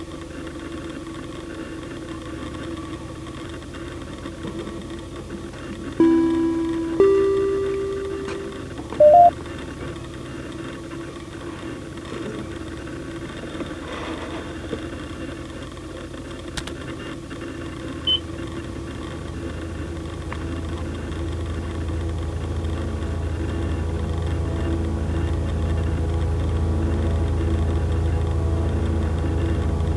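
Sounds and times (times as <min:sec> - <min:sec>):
tiny high blip: 0:06.0 - 0:09.3
two-note electronic beep: 0:06.0 - 0:09.3.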